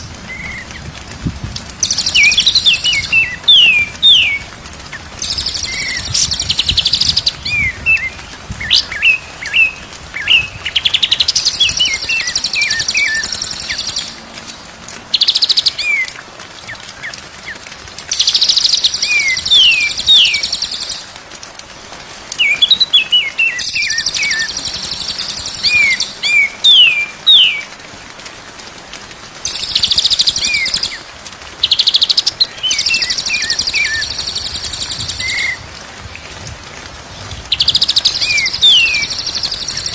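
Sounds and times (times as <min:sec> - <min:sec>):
bird whistling song: 0:01.8 - 0:04.5, 0:05.2 - 0:14.1, 0:18.2 - 0:21.0, 0:22.4 - 0:27.7, 0:31.6 - 0:35.6, 0:37.5 - 0:39.9.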